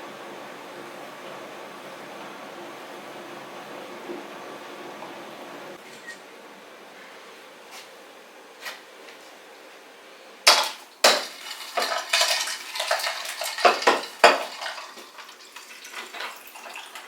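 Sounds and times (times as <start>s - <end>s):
dishes and utensils clattering: 10.5s - 17.0s.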